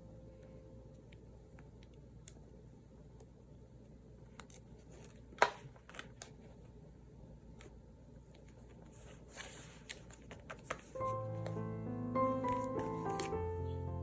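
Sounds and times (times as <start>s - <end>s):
paper rustle: 8.4s - 11.6s, 12.4s - 13.4s.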